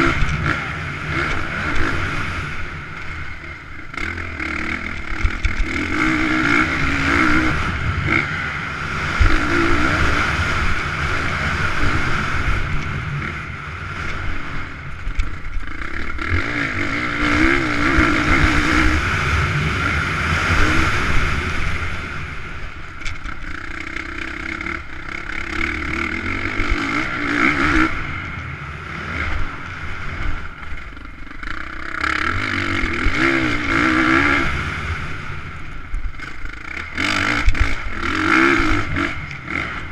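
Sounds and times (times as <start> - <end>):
motocross bikes revving: 0.0 - 39.9.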